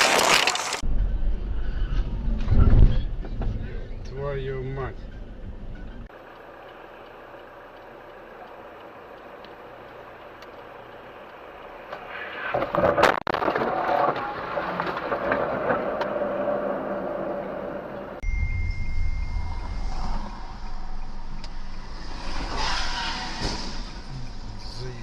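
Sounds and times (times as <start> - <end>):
car road noise: 0.0 - 25.0
loud collision bang: 18.2 - 24.1.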